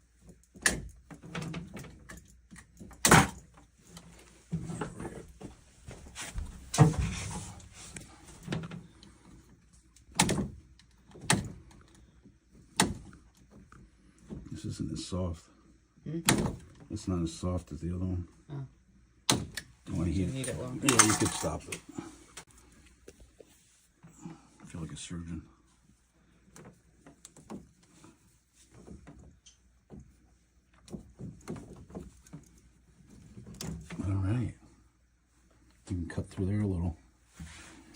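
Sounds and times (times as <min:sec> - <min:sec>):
clicks and knocks on plastic pipe: 0:26.5 - 0:34.0.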